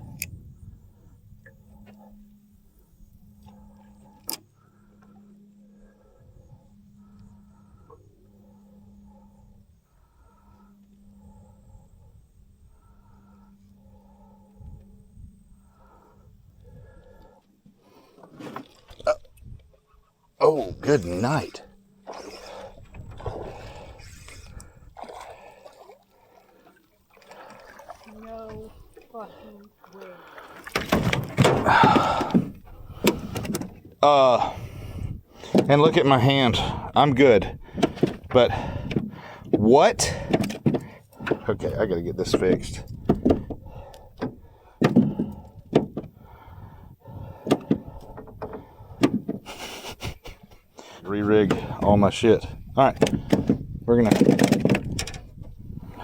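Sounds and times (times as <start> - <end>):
faint low hum: 0.0 - 17.8
water splashing and gurgling: 21.0 - 33.5
fishing tackle knocks and clunks: 30.5 - 34.0, 35.4 - 49.5, 51.3 - 55.6.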